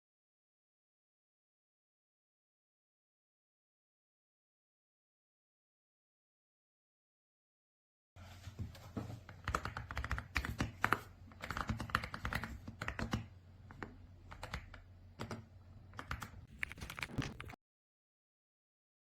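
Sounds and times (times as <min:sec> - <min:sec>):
mechanical keyboard typing: 0:09.4 - 0:13.3, 0:14.3 - 0:17.6.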